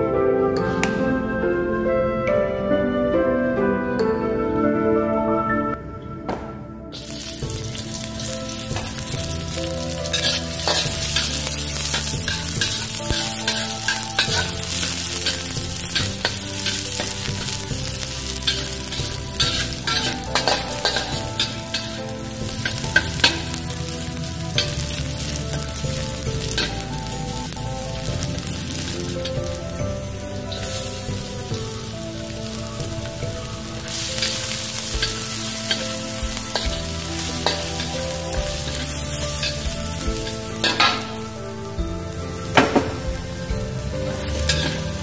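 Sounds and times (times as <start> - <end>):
metal spatula scraping a wok: 7.0 - 41.4, 43.7 - 45.0
shallots sizzling in hot oil: 7.0 - 45.0.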